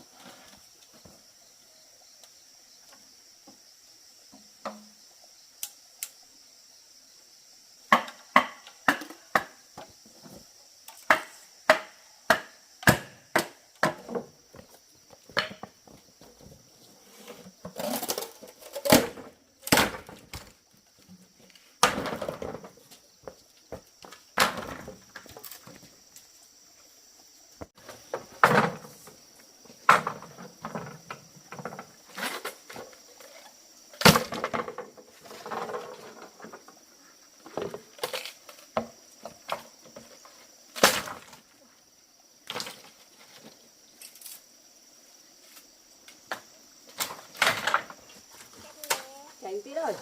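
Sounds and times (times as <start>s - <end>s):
blade chopping wood: 11.0s - 14.2s
rustling scrapes: 16.8s - 18.7s.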